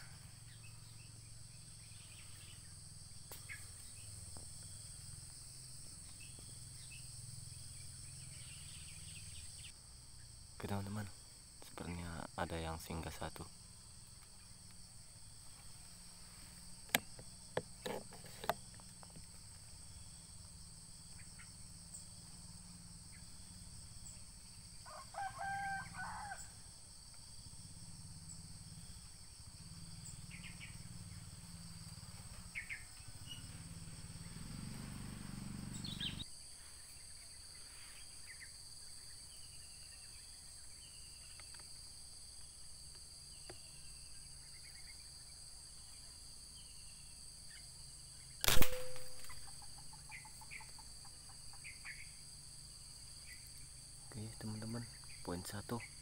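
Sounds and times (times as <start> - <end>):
insects droning: 0.0 - 56.0
sharp clicks: 16.9 - 18.6, 48.4 - 49.5
rooster crowing: 24.8 - 26.7.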